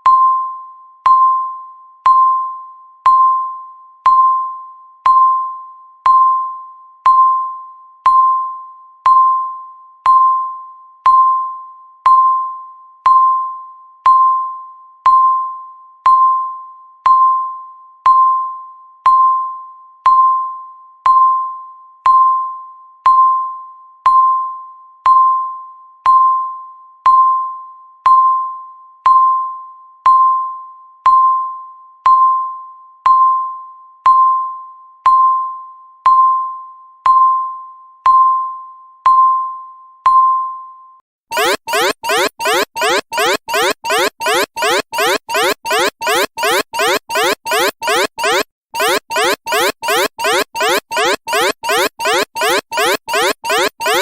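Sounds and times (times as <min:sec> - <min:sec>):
electronic timer ding: 0:41.3 - 0:54.0.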